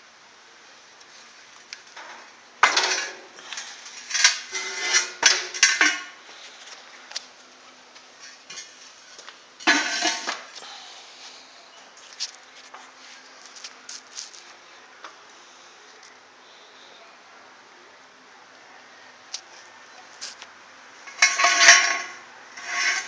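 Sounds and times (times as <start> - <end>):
faint steady hum: 0.0 - 23.0
metal clanking and scraping: 2.0 - 6.2, 9.6 - 10.5, 21.0 - 23.0.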